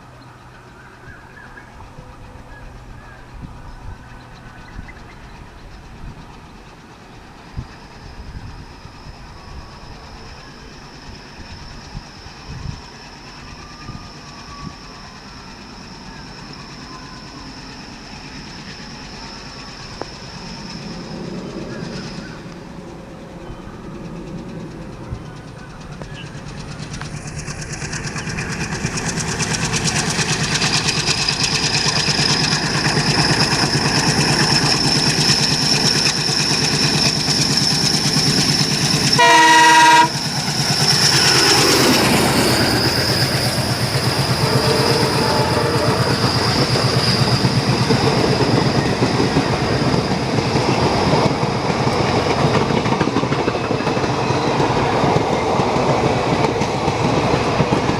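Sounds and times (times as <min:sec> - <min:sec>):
diesel locomotive engine passing: 0:00.0 - 0:57.9
rhythmic wheel clatter: 0:24.0 - 0:39.2
train horn blast: 0:39.1 - 0:40.3, 0:44.3 - 0:46.4.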